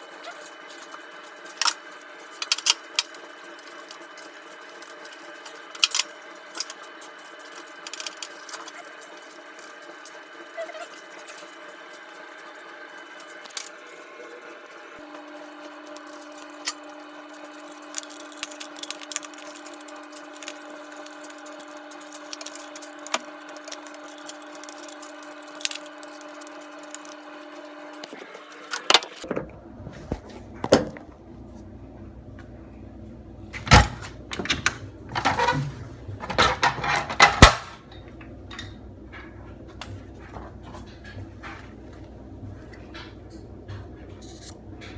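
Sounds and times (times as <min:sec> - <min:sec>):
tools knocking and clattering: 0:33.6 - 0:38.7.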